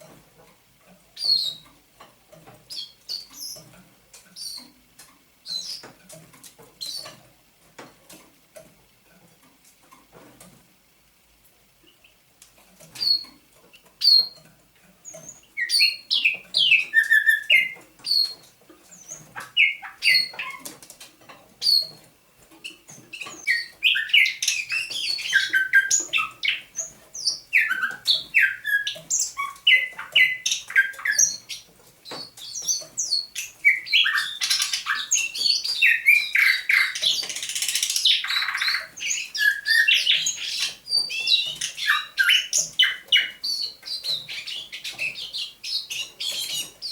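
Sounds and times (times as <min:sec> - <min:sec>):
bird singing clicks and whistles: 0:01.2 - 0:01.7, 0:05.4 - 0:05.9, 0:12.8 - 0:13.4, 0:14.0 - 0:20.8, 0:22.6 - 0:46.9.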